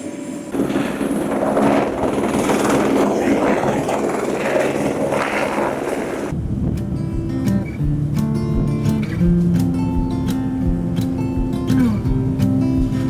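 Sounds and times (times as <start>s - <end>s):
helicopter rotor and engine: 0.0s - 6.3s.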